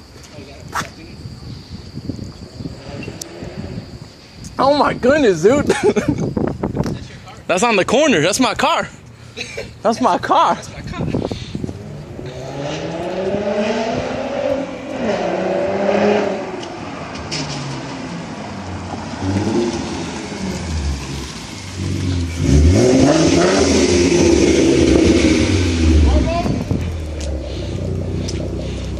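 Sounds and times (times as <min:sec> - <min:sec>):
car engine revving: 0:11.7 - 0:28.9.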